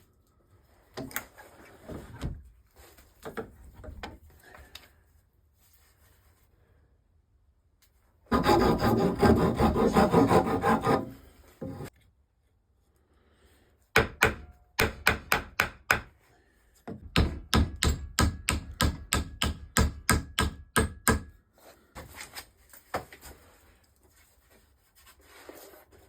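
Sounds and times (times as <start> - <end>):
hammer striking wood: 14.0 - 16.1, 16.9 - 21.4.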